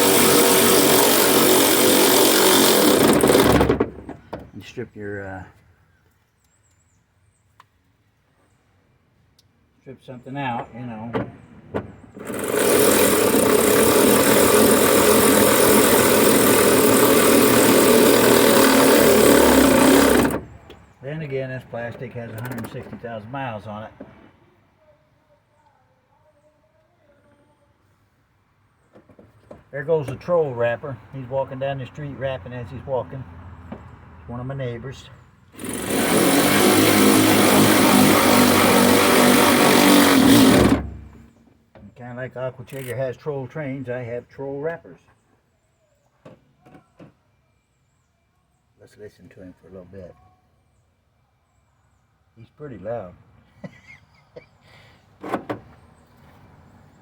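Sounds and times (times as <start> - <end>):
power tool running: 0.0 - 4.2, 12.2 - 20.7, 35.5 - 41.4.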